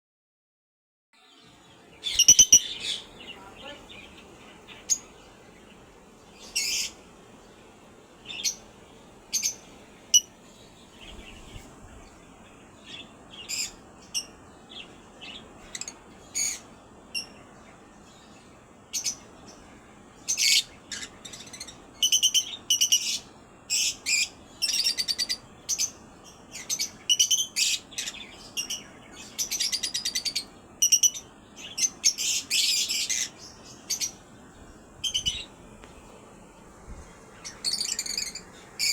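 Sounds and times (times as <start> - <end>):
small birds chirping: 1.2 - 38.9
bird trills: 2.0 - 4.1, 20.3 - 26.0, 26.6 - 34.2, 37.4 - 38.9.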